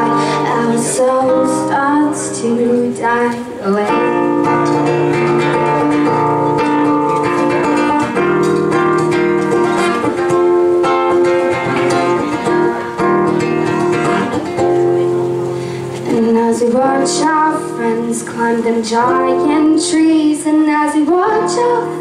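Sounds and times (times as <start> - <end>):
acoustic guitar playing chords: 0.0 - 22.0.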